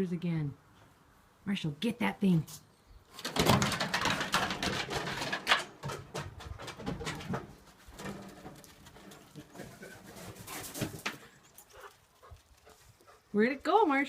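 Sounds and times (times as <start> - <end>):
clicks and rustles: 2.5 - 13.1.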